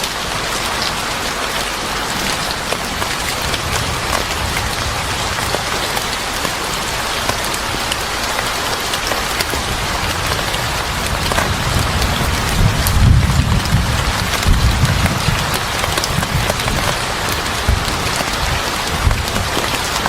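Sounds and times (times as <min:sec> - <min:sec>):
heavy rain falling: 0:00.0 - 0:20.0
low thunder rumble: 0:01.9 - 0:07.1, 0:09.5 - 0:20.0.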